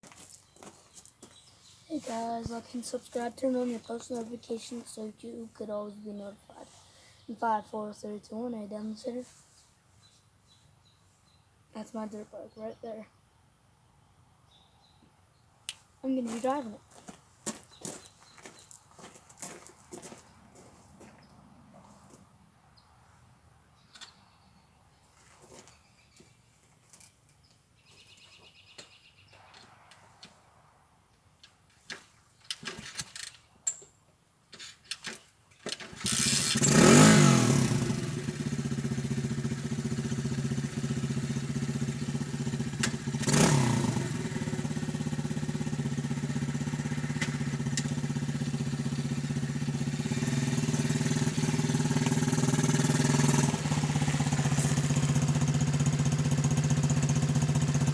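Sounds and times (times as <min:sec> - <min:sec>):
dirt bike engine revving: 0:35.9 - 0:57.9.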